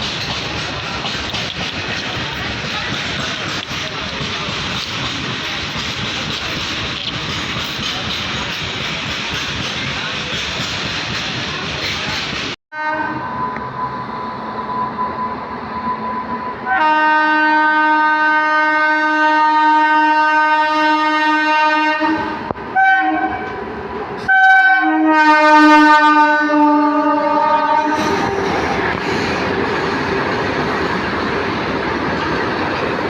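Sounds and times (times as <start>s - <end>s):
train running on track: 0.0s - 33.0s
locomotive horn blasts: 12.7s - 13.7s, 16.6s - 23.6s, 24.3s - 28.4s.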